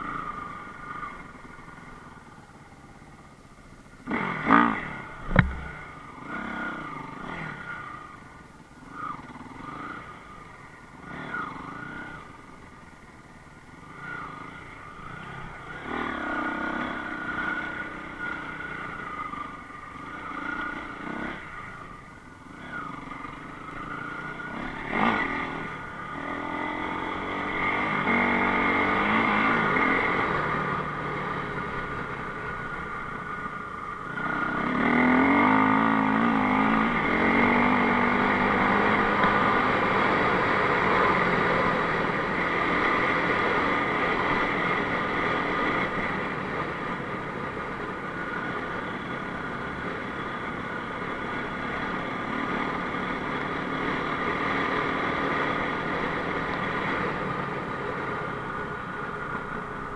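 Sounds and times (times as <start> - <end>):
motorcycle engine revving: 3.9 - 59.9
sharp knock: 5.2 - 5.8.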